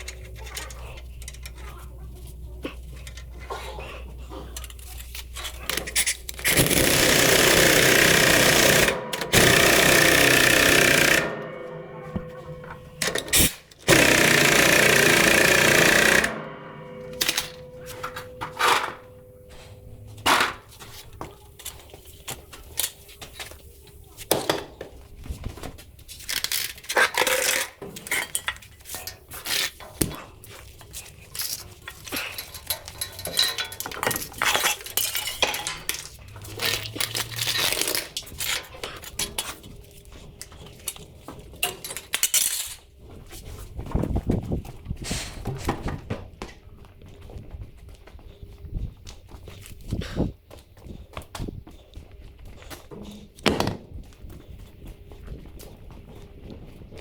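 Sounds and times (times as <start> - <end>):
metal tools clanking: 0.0 - 23.1, 26.3 - 39.8
power tool running: 6.4 - 20.6.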